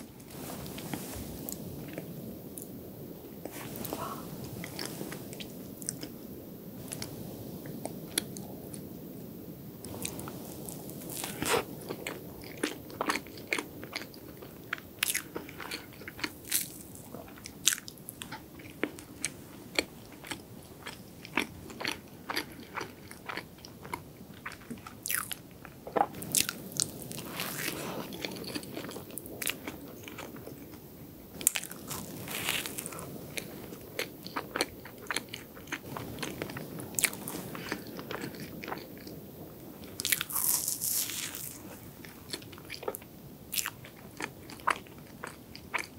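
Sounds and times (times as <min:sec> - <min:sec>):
close chewing: 0:09.8 - 0:45.9.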